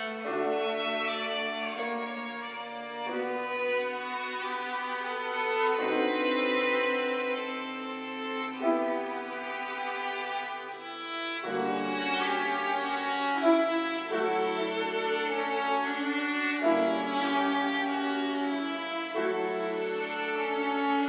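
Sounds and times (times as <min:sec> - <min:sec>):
piano trio playing classical music: 0:00.0 - 0:21.0.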